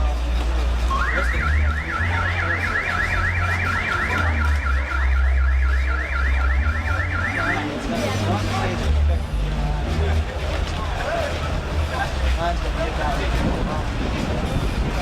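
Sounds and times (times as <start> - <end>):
deep bass tones: 0.0 - 15.0
car alarm siren sweeping: 0.8 - 8.9.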